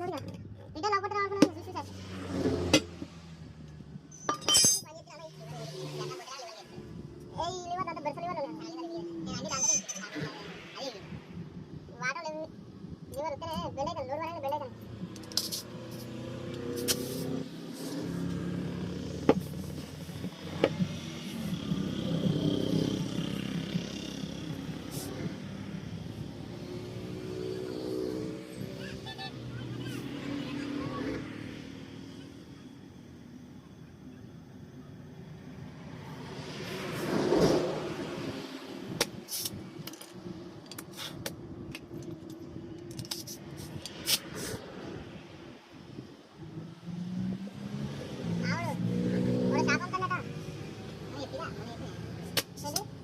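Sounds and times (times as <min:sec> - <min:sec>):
vehicle passing: 0:00.8 - 0:04.1, 0:05.0 - 0:11.7, 0:14.6 - 0:33.4, 0:34.6 - 0:40.6, 0:43.4 - 0:53.0
metallic clinks and taps: 0:04.2 - 0:04.9.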